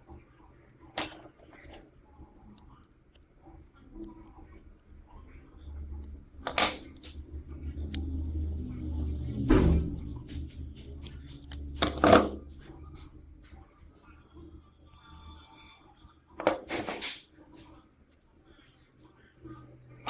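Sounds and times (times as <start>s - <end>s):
low hum: 2.0s - 16.4s.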